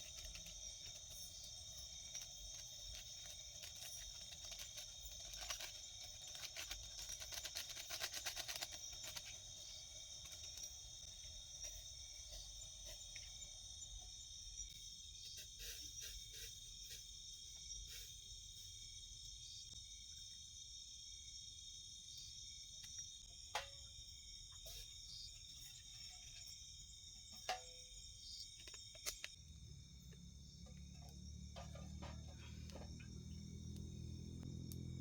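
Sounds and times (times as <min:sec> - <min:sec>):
clicks and crackles: 0:00.0 - 0:11.0, 0:28.4 - 0:29.4, 0:33.7 - 0:34.9
insects chirring: 0:00.0 - 0:35.0.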